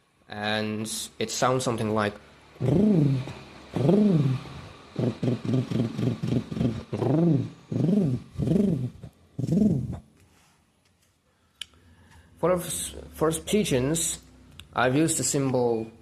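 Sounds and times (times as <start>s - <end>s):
pigeon cooing: 2.6s - 10.1s.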